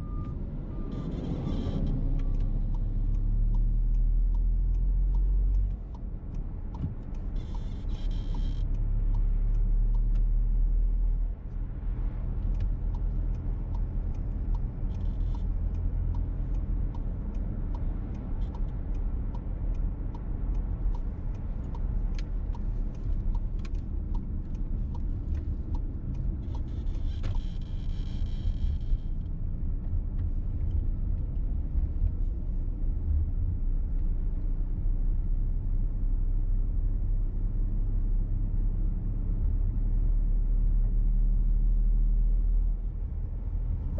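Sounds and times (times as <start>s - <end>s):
engine and road rumble: 0.0s - 43.9s
faint regular ticking: 2.3s - 10.8s, 12.4s - 29.3s
squeak inside car: 26.6s - 29.1s.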